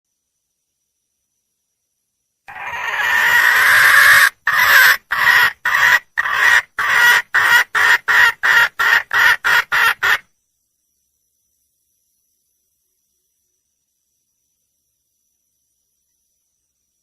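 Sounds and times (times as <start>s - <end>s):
hen calling: 2.5s - 10.2s.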